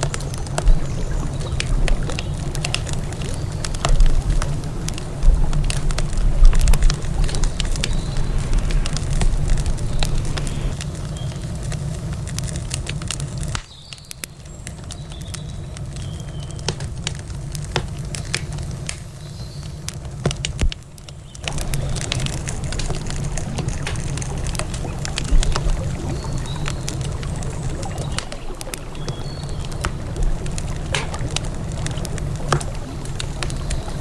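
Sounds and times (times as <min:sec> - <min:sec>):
low rumble: 0:00.0 - 0:11.9, 0:21.5 - 0:34.0
campfire crackling and popping: 0:00.0 - 0:34.0.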